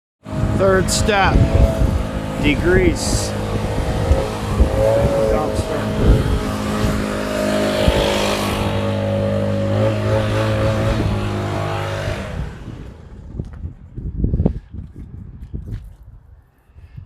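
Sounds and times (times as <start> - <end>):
pressure washer engine running: 0.2 - 13.3
hissing water spray: 0.8 - 12.3.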